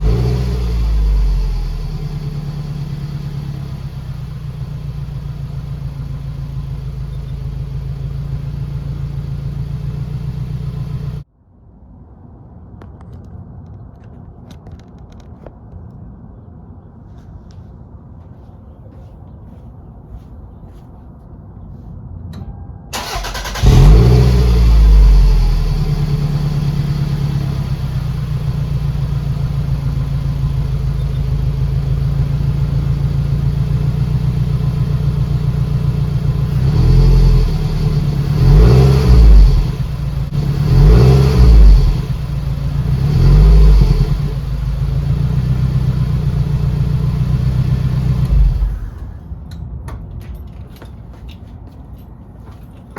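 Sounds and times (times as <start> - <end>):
car engine idling and revving: 0.0 - 11.3, 23.0 - 49.2.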